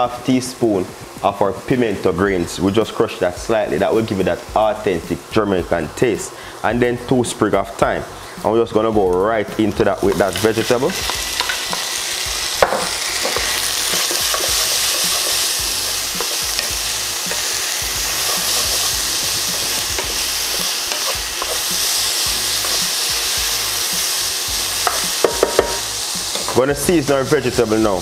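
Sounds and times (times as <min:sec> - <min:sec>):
vegetables sizzling in hot oil: 0:00.0 - 0:28.0
spoon knocking against pan: 0:12.6 - 0:15.5, 0:24.8 - 0:26.6
wooden spoon stirring: 0:12.6 - 0:23.4.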